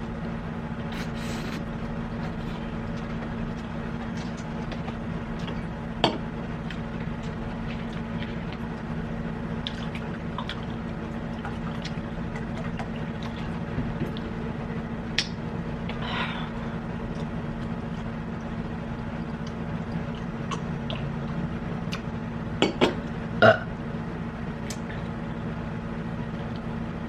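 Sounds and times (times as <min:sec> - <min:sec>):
steady low hum: 0:00.0 - 0:27.0
wet chewing: 0:09.6 - 0:14.4.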